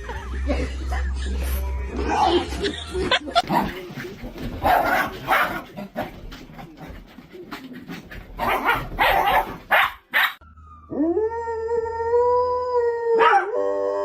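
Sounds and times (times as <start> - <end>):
dog barking: 4.6 - 5.6, 8.4 - 10.4, 13.2 - 13.5
dog howling: 10.9 - 14.0.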